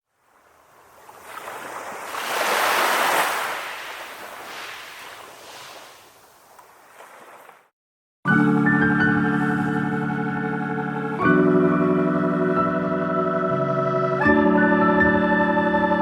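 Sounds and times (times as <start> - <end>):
ocean wave washing out: 0.6 - 7.6
organ-like music: 8.3 - 16.0.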